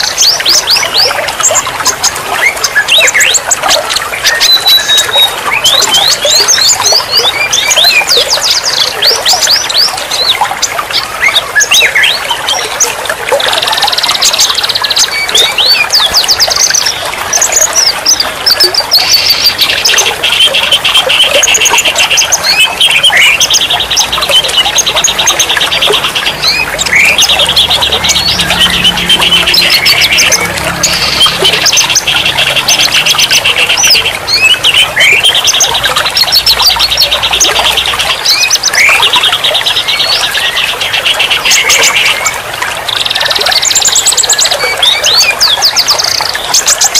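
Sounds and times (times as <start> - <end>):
songbird singing trills: 0.0 - 46.9.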